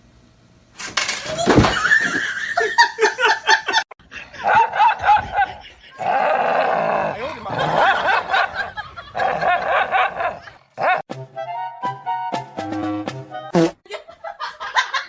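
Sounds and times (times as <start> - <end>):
people laughing: 1.4 - 6.2, 7.2 - 10.7, 13.9 - 15.0.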